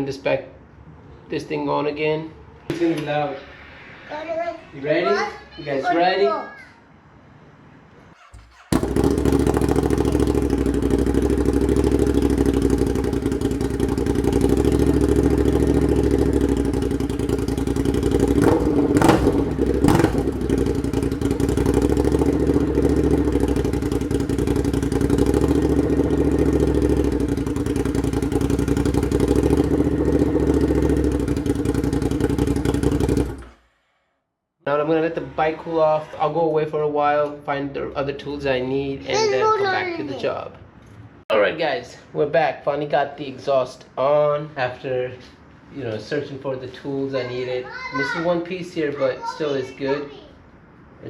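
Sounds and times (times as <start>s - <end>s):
motorcycle engine idling loudly: 8.8s - 33.6s.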